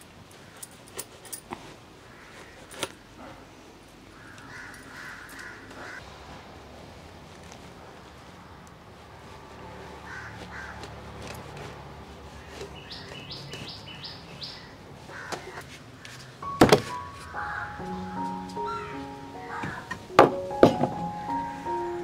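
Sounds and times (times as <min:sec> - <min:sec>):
bird chirping rising notes: 0:16.4 - 0:22.0
soft held music notes: 0:16.4 - 0:22.0.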